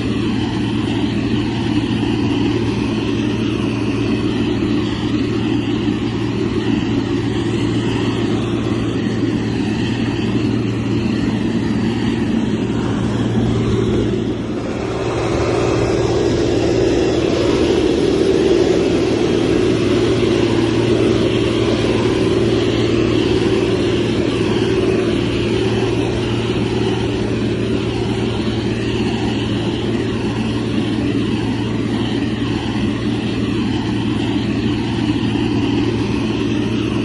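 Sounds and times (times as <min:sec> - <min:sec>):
construction machine diesel engine: 0:00.0 - 0:37.0.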